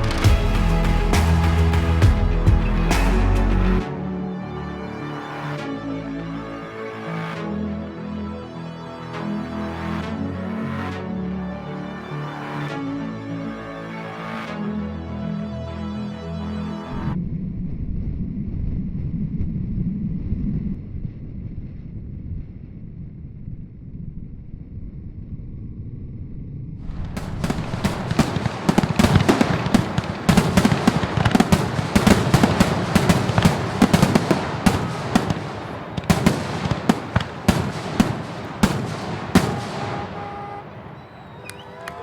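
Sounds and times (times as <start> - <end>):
fireworks bangs and crackles: 26.9 - 41.3.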